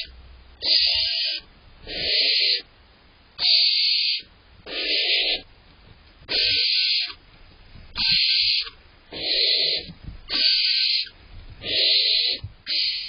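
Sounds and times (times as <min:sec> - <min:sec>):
owlets hissing: 0:00.0 - 0:02.7.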